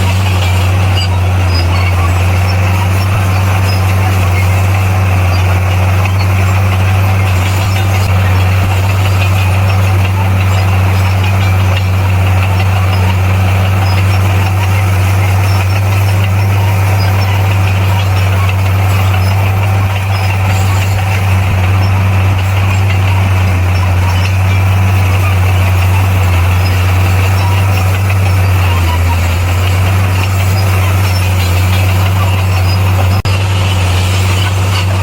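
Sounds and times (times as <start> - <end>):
bulldozer diesel engine droning: 0.0 - 35.0.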